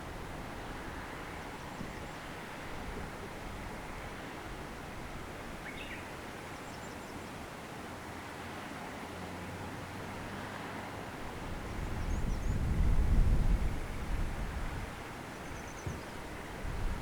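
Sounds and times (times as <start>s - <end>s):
wind rumble on microphone: 0.0s - 5.5s, 11.2s - 17.0s.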